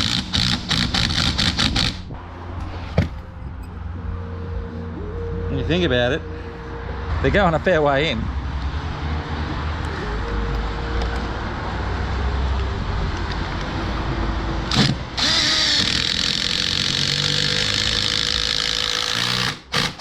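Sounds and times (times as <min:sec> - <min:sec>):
power tool whining: 0:00.0 - 0:02.1, 0:14.7 - 0:20.0
low rumble: 0:01.9 - 0:15.4.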